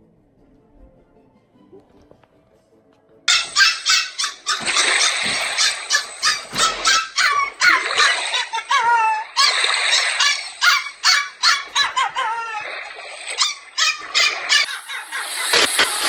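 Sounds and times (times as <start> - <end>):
puppy yapping: 3.3 - 15.5.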